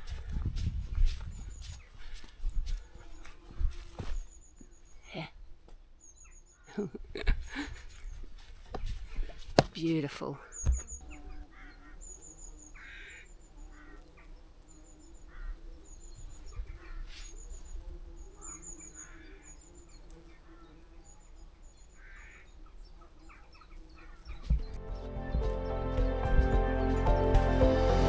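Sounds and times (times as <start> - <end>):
birds chirping: 0.0 - 28.0
bees humming: 10.6 - 28.0.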